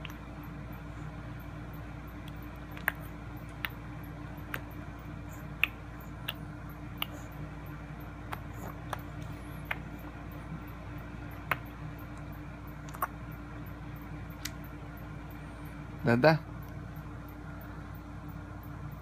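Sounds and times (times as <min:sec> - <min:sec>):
faint room hum: 0:00.0 - 0:19.0.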